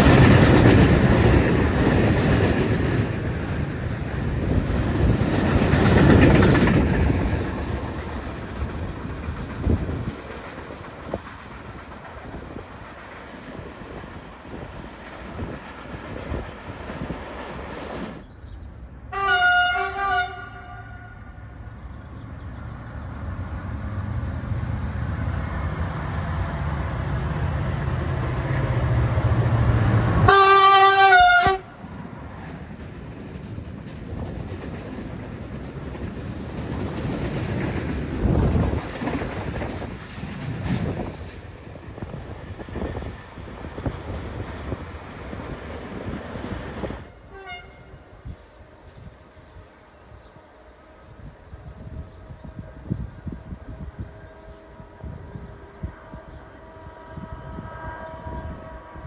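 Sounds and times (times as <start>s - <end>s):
train rolling past: 0.0s - 59.0s
train horn: 19.1s - 21.6s, 28.8s - 31.9s, 47.0s - 48.4s, 51.2s - 59.0s.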